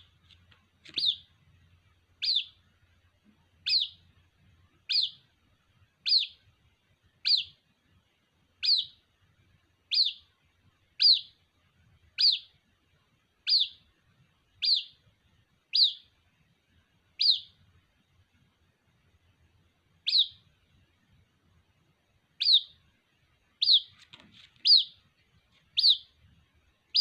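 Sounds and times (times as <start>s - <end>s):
bird chick peeping: 0.0s - 2.8s, 3.5s - 6.5s, 7.1s - 7.6s, 8.6s - 9.1s, 9.8s - 11.5s, 12.1s - 12.6s, 13.4s - 13.9s, 14.5s - 16.2s, 17.1s - 17.7s, 20.0s - 20.5s, 22.3s - 22.9s, 23.5s - 27.0s.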